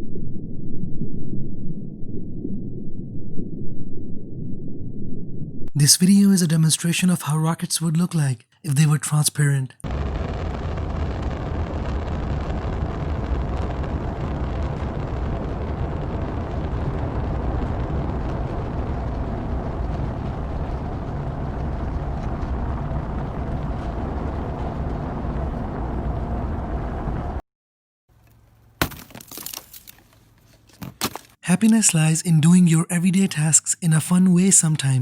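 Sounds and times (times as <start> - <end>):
rocket engine rumble: 9.8 - 27.4.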